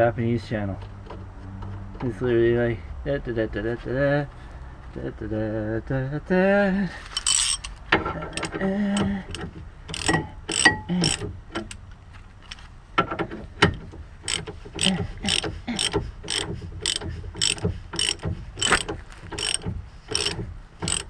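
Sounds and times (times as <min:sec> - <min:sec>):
ratchet wrench clicking: 0:07.2 - 0:11.8, 0:13.7 - 0:21.0.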